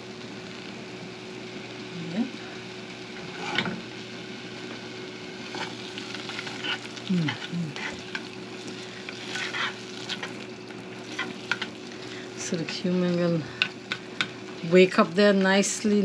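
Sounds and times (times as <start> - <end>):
food sizzling in oil: 0.0 - 16.0
metal spoon scraping pan: 9.2 - 10.4, 11.0 - 11.7.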